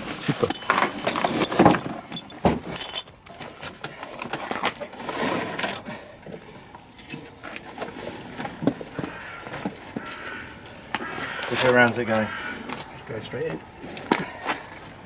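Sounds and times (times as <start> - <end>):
shuffling: 0.0 - 3.1
metal knocks and clinks: 0.0 - 3.2.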